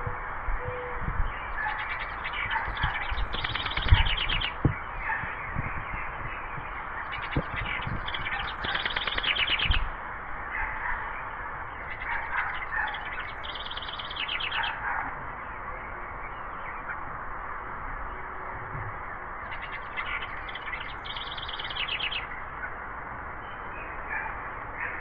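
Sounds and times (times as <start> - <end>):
outdoor background hiss: 0.0 - 25.0
songbird trilling: 1.4 - 9.9, 11.8 - 14.8, 19.4 - 22.4.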